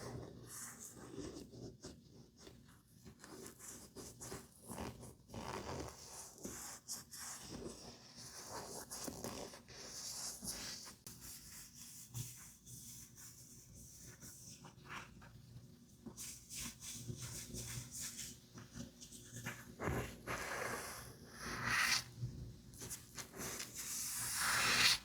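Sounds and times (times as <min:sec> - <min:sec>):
makeup brushes scratching: 0:22.8 - 0:25.0.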